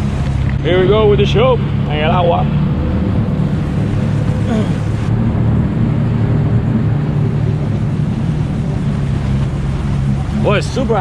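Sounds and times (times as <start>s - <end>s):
jet ski engine droning: 0.0s - 11.0s
water rushing: 1.0s - 5.2s.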